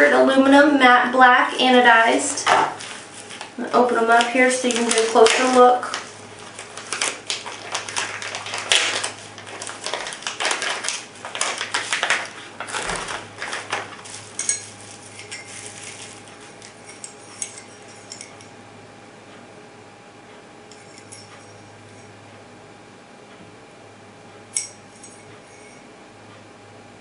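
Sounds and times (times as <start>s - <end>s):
packaging rustling and crinkling: 2.6s - 16.8s
light metallic clinks: 20.7s - 22.1s, 24.6s - 25.8s.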